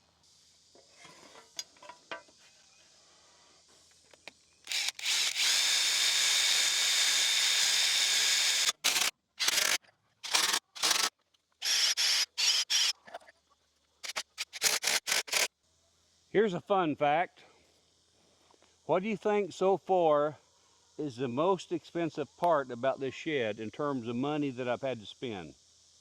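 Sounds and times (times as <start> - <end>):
cordless drill running: 4.7 - 12.9, 14.0 - 15.5.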